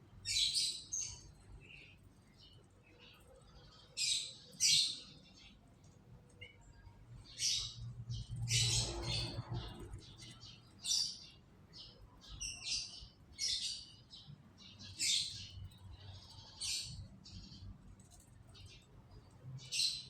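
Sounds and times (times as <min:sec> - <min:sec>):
canaries chirping: 0:00.1 - 0:05.6, 0:06.3 - 0:17.8, 0:18.4 - 0:20.0
low rumble: 0:07.6 - 0:10.5.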